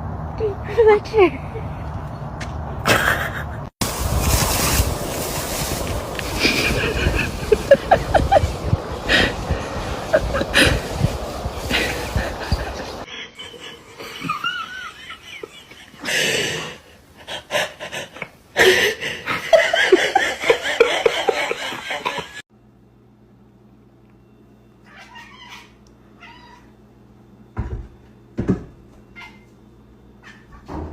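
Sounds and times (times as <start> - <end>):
steady low hum: 3.8 - 15.9
cat meowing and yowling: 24.9 - 26.7.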